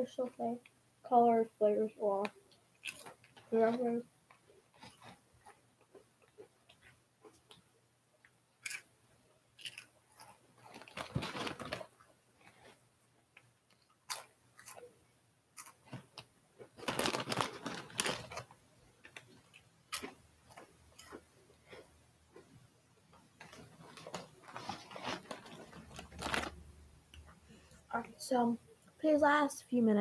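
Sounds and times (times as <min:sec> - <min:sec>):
mouth crunching crisp chips: 0:02.8 - 0:03.3, 0:08.6 - 0:08.9, 0:09.6 - 0:11.7, 0:14.0 - 0:14.9, 0:19.2 - 0:22.5.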